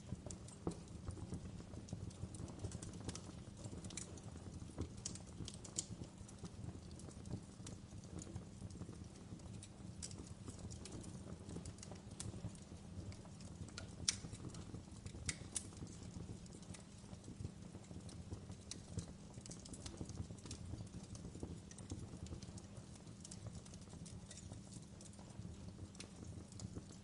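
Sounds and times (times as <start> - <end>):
fire popping and snapping: 0.0 - 27.0
fireplace crackling: 0.0 - 27.0.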